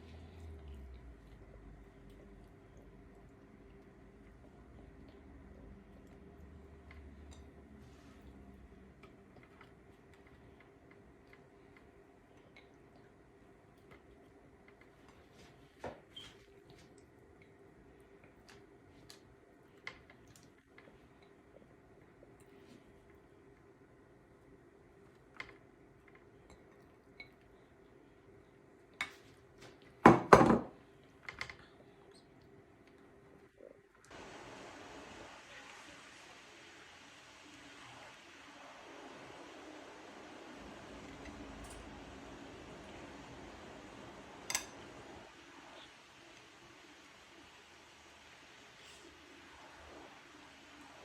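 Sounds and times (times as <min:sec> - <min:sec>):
kitchenware clattering: 0:30.1 - 0:30.7.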